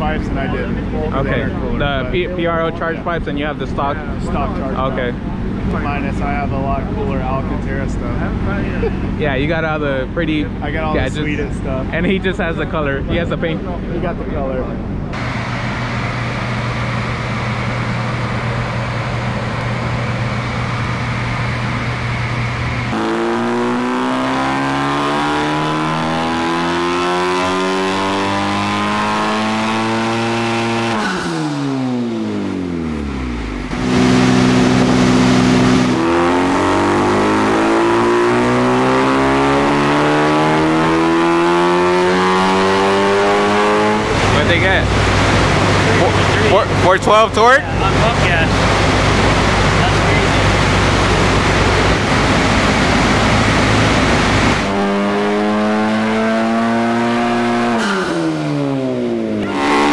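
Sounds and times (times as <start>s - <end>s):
car engine revving on dyno: 15.1s - 59.9s.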